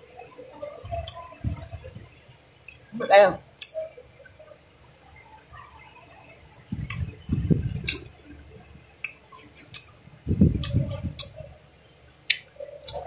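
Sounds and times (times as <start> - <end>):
person chewing fruit: 6.8 - 7.1, 9.0 - 9.9, 10.5 - 11.4, 12.2 - 13.0.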